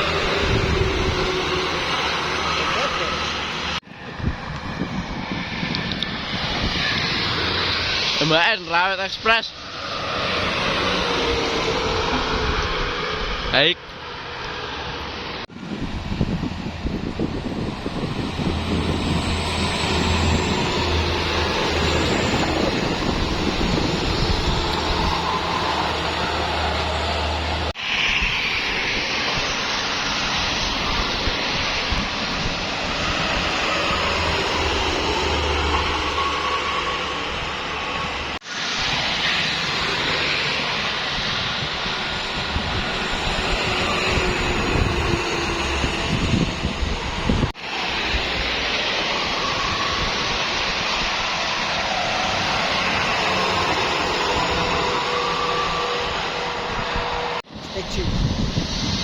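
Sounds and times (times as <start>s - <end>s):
truck engine drone: 0.0s - 4.8s, 9.4s - 28.1s, 32.6s - 57.5s
tyre and wind noise: 3.9s - 8.2s, 14.4s - 34.4s, 37.4s - 53.7s, 54.3s - 59.0s.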